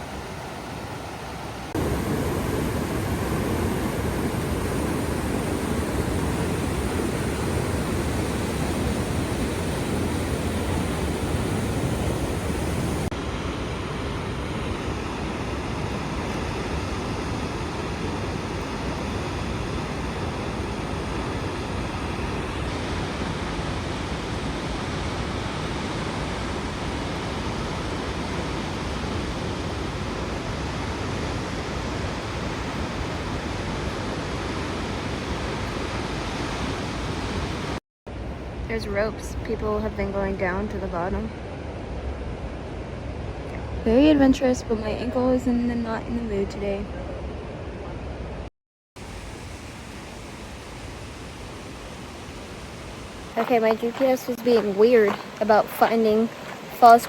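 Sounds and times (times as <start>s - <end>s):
waterfall roaring: 0.0s - 13.2s, 49.0s - 57.0s.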